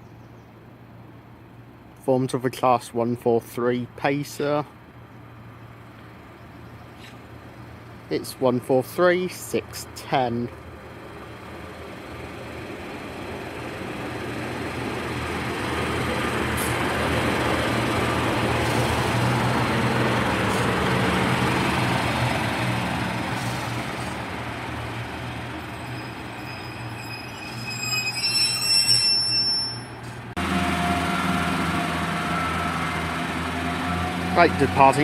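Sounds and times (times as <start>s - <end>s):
train engine hum: 8.8s - 35.0s
shrill brake squeal: 25.6s - 35.0s.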